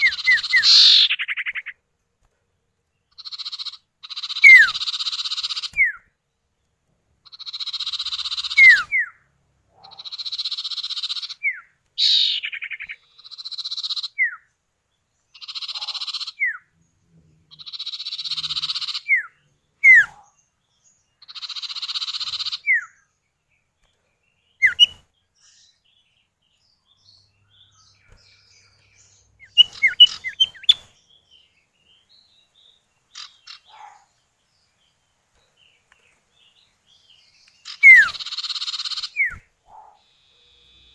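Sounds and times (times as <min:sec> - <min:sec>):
harsh buzzy bird calls: 0:00.0 - 0:01.8, 0:03.1 - 0:06.2, 0:07.2 - 0:14.6, 0:15.3 - 0:35.0, 0:35.7 - 0:40.9
short bird chirps: 0:00.0 - 0:01.8, 0:03.2 - 0:06.1, 0:07.3 - 0:09.2, 0:09.8 - 0:14.5, 0:17.6 - 0:20.3, 0:24.6 - 0:26.0, 0:27.0 - 0:31.0, 0:37.4 - 0:40.9
downward-sweeping bird whistle: 0:37.8 - 0:38.2.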